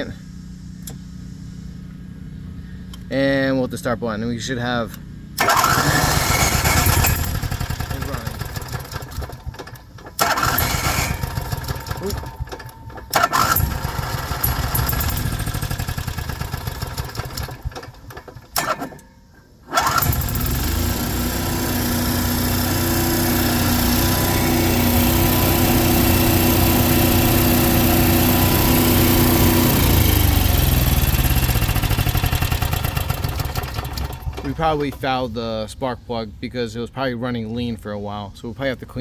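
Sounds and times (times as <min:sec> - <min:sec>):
generator engine running: 0:05.0 - 0:35.3.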